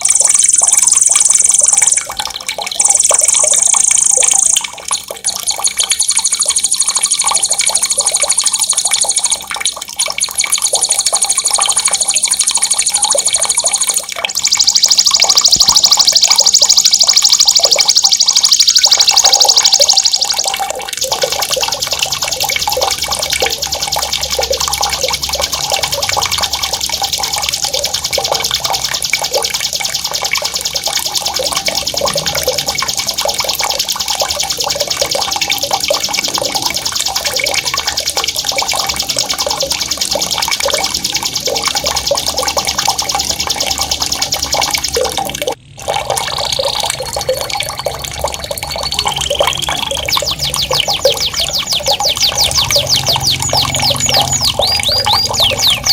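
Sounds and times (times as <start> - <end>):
drawn-out whistled notes: 0.0 - 2.1, 2.8 - 4.7, 5.4 - 9.5, 10.3 - 20.6, 48.7 - 55.9
songbird rolling trill: 0.0 - 2.2, 2.8 - 4.8, 5.9 - 9.4, 10.4 - 28.6, 48.9 - 55.9
water gurgling: 0.0 - 55.9.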